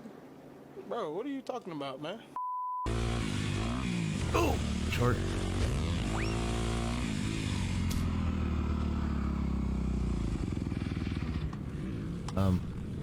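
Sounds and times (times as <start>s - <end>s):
dirt bike engine running: 2.9s - 13.0s.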